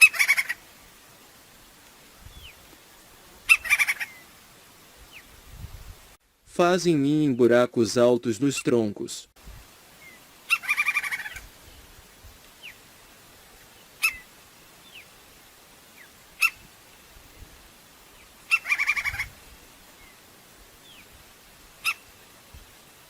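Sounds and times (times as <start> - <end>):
woodpecker call notes: 0.0 - 0.6, 3.4 - 4.3, 10.0 - 11.5, 14.0 - 15.1, 16.0 - 16.8, 18.2 - 19.4, 21.8 - 22.2.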